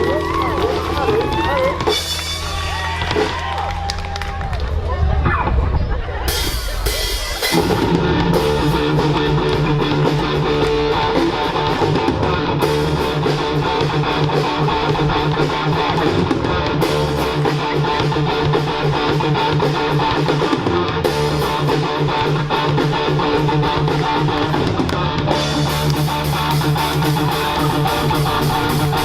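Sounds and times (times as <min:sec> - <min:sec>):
bass guitar: 0:00.0 - 0:29.0
strummed guitar: 0:07.4 - 0:29.0.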